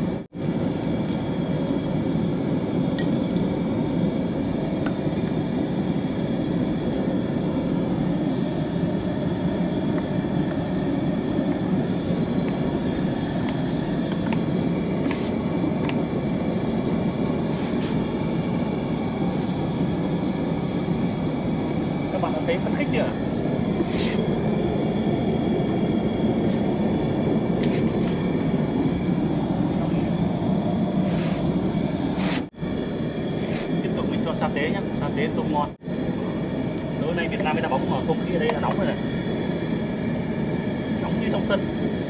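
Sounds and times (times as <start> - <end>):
glass bottle clinking on metal pan: 3.0 - 3.3.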